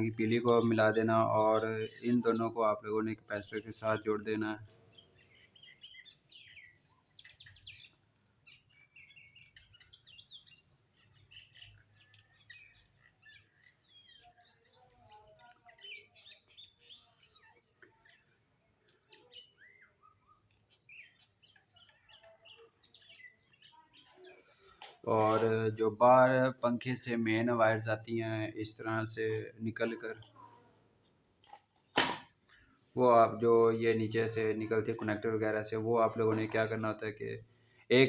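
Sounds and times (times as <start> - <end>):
faint birds chirping: 0.0 - 38.0.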